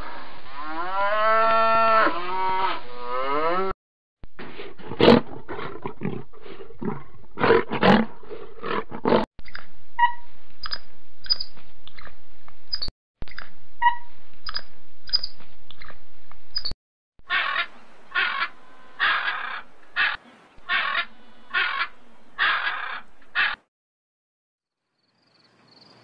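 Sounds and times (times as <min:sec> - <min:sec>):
harsh penguin calls: 0:17.3 - 0:23.6.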